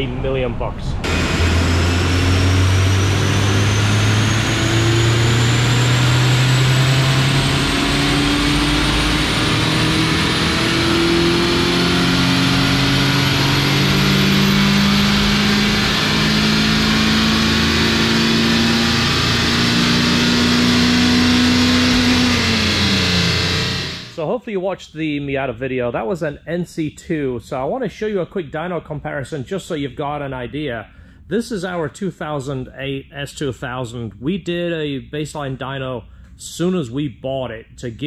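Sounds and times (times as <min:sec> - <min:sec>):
high whine: 0:00.0 - 0:24.2
car engine under load: 0:00.9 - 0:24.2.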